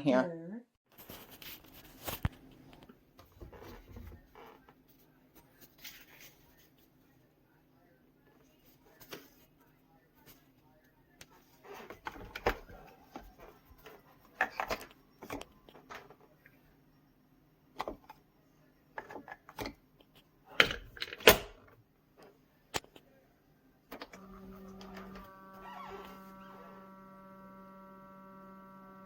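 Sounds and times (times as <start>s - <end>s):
electric hum: 23.9s - 29.0s.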